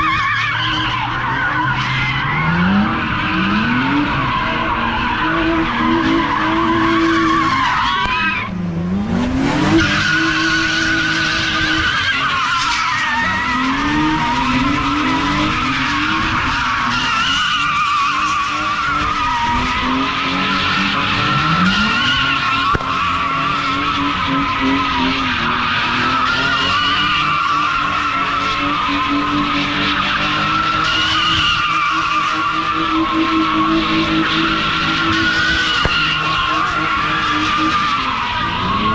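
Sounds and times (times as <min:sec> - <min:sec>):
car engine revving: 0:00.0 - 0:38.9
car tyres squealing: 0:00.0 - 0:38.9.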